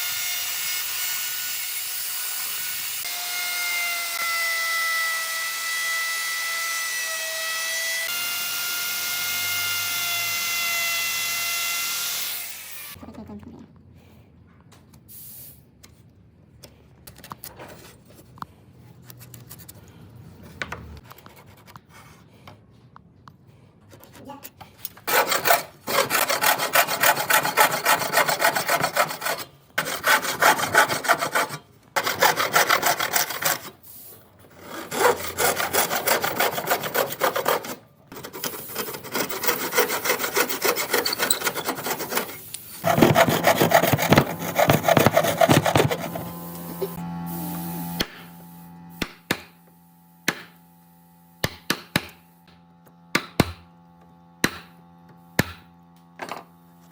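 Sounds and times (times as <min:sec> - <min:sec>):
hand tool rasping wood: 0:25.0 - 0:33.8, 0:34.6 - 0:47.0.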